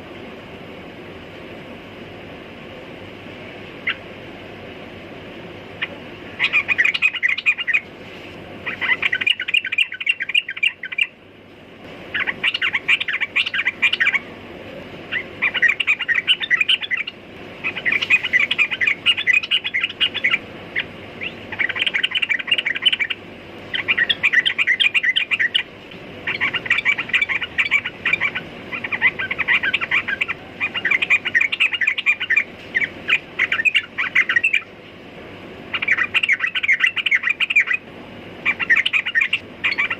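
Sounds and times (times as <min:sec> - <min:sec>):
bulbul chirping song: 0:03.8 - 0:04.1, 0:05.8 - 0:07.9, 0:08.6 - 0:11.2, 0:12.1 - 0:14.3, 0:15.1 - 0:34.7, 0:35.7 - 0:37.8, 0:38.4 - 0:39.9.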